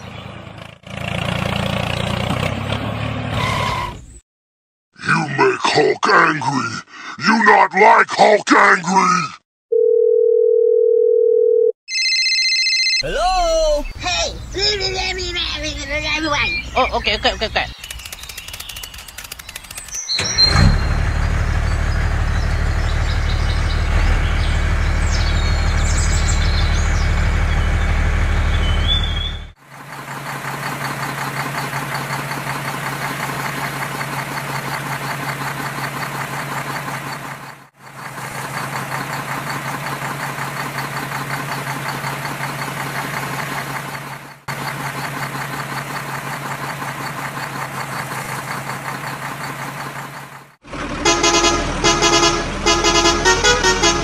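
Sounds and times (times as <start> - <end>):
truck engine rumbling: 0.0 - 4.2, 13.0 - 54.0
fast rattling engine note: 17.7 - 54.0.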